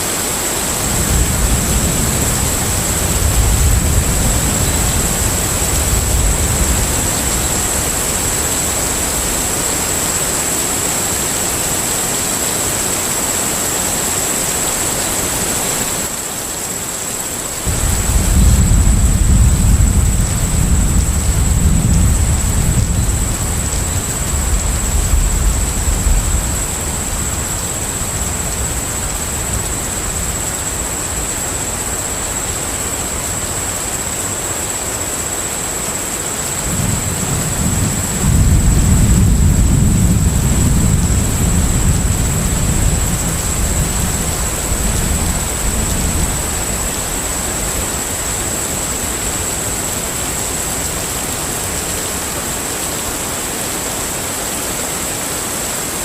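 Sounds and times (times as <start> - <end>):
rain hissing: 0.0 - 56.0
rolling thunder: 0.7 - 10.5, 17.6 - 31.4, 36.6 - 51.2
high steady whine: 17.3 - 54.3.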